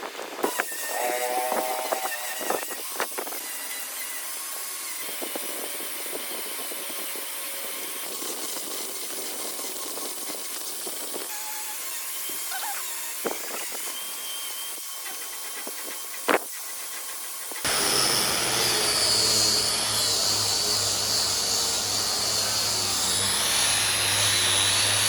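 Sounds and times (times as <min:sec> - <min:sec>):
power tool cutting wood: 0:00.4 - 0:25.0.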